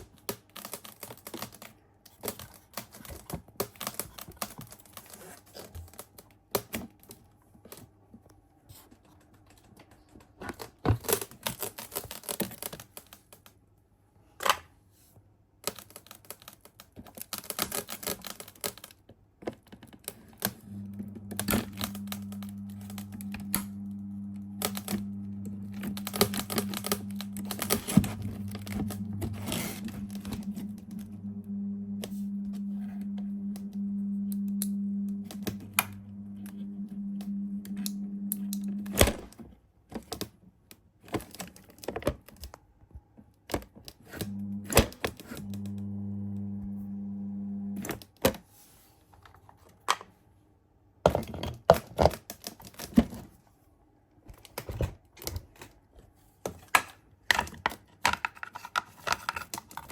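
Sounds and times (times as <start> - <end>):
fan motor humming: 20.6 - 39.2, 44.2 - 47.8.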